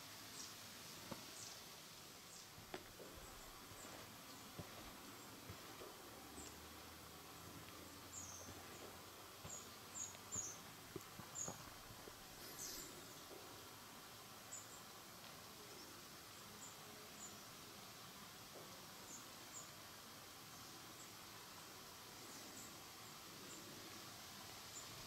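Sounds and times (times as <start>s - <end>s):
quiet hiss: 0.0s - 25.0s.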